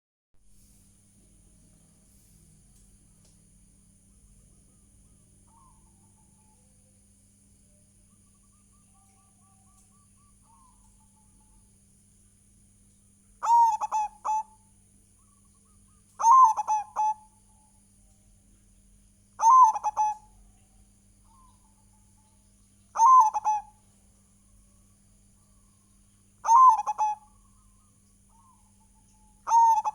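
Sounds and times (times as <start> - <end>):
dove cooing: 4.2 - 6.7, 13.4 - 14.7, 15.9 - 17.4, 19.4 - 20.5, 22.9 - 23.8, 26.4 - 27.4, 29.4 - 29.9.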